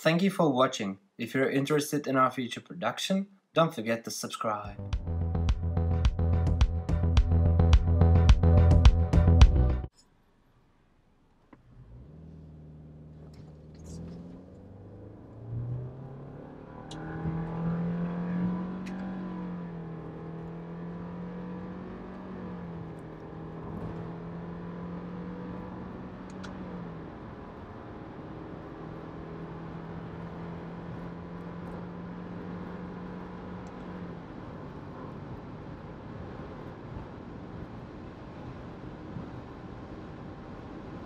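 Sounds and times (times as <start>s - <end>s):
car engine accelerating hard: 11.6s - 41.0s.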